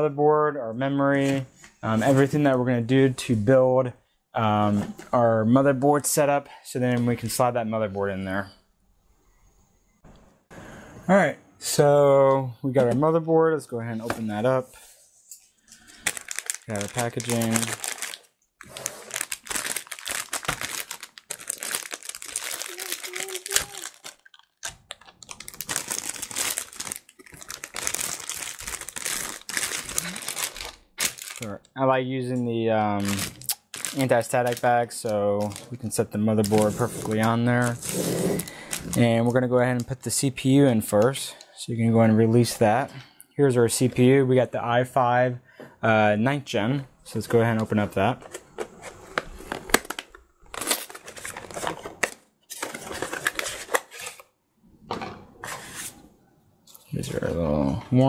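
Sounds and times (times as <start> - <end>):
plastic bag crinkling: 15.6 - 31.6, 33.0 - 39.3, 49.6 - 54.2.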